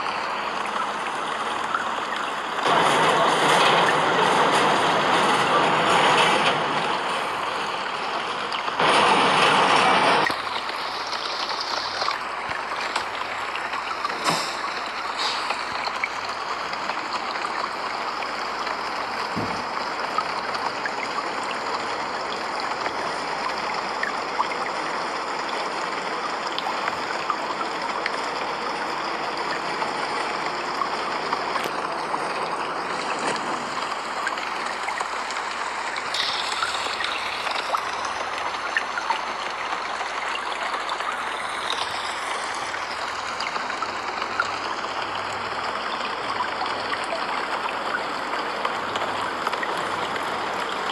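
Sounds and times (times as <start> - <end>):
running water: 0.0 - 50.9
steady rain falling: 0.0 - 50.9.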